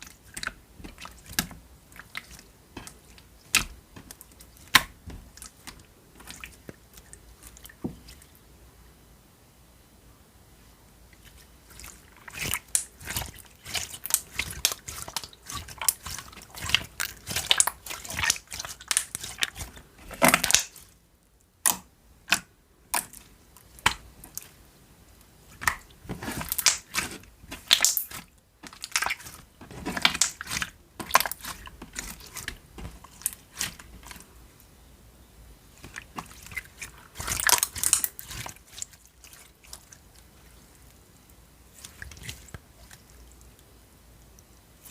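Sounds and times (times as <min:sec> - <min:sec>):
slime squelching and popping: 0:00.0 - 0:08.3, 0:11.2 - 0:20.9, 0:21.6 - 0:24.6, 0:25.4 - 0:34.3, 0:35.7 - 0:40.3.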